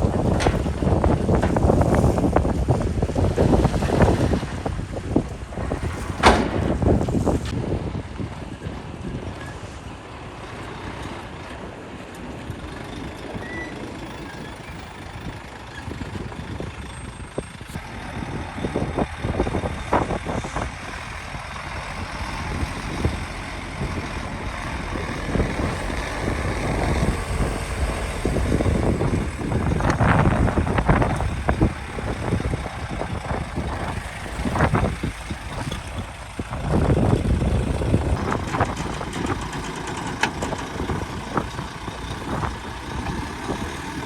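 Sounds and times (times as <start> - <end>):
loose rock clattering: 0.0 - 7.6, 21.8 - 44.0
heavy machinery diesel engines: 0.0 - 44.0.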